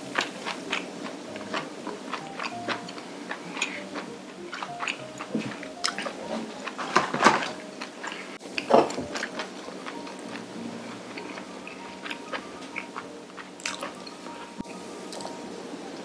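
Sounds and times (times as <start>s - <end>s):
quiet background music: 0.0s - 16.0s
wet chewing and mouth smacks: 0.1s - 6.8s, 7.4s - 15.3s.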